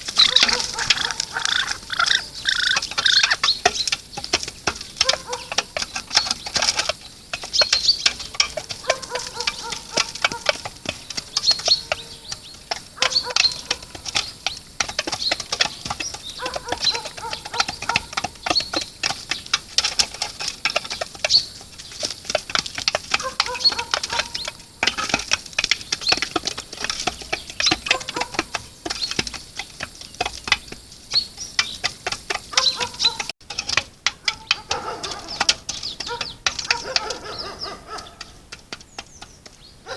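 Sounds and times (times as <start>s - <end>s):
bird falling call: 0.0s - 4.0s
birds pecking and scratching: 0.0s - 39.9s.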